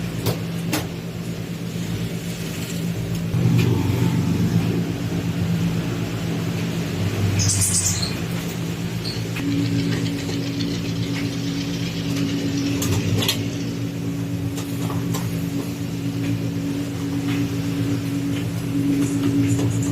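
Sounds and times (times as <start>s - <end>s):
washing machine motor hum: 0.0s - 19.9s
high tone: 3.4s - 8.4s.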